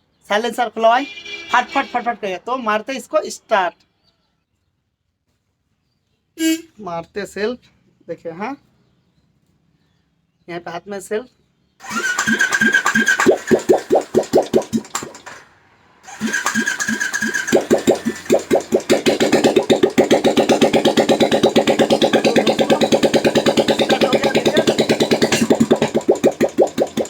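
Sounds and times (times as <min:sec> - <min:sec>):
electric starter cranking: 0:11.8 - 0:27.0
loud motorcycle exhaust beat: 0:12.8 - 0:15.1, 0:16.2 - 0:27.0.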